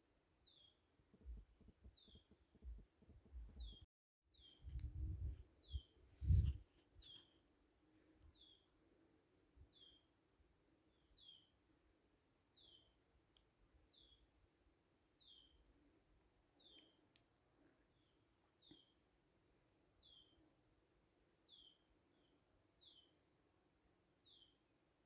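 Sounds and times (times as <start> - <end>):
low rumbling thumps: 4.7 - 5.4.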